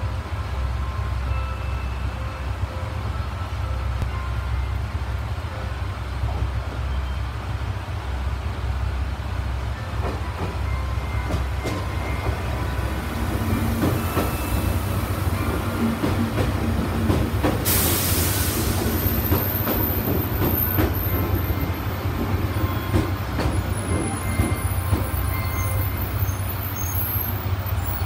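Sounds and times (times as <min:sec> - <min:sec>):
electric train rumbling past: 0:00.0 - 0:28.0
high-pitched wheel squeals: 0:19.2 - 0:28.0.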